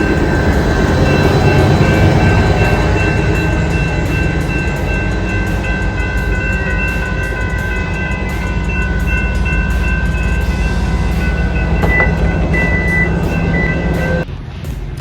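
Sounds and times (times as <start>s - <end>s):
diesel train low rumble: 0.0s - 14.3s
high-pitched whine: 0.0s - 14.3s.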